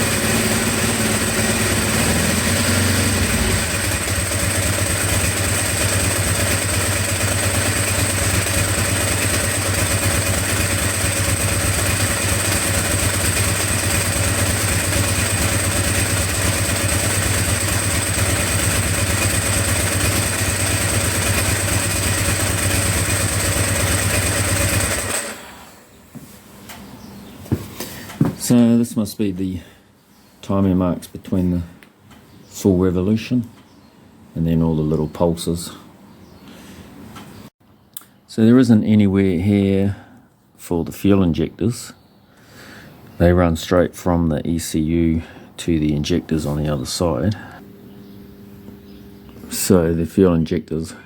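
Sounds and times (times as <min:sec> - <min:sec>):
motorcycle engine idling: 0:00.0 - 0:25.7.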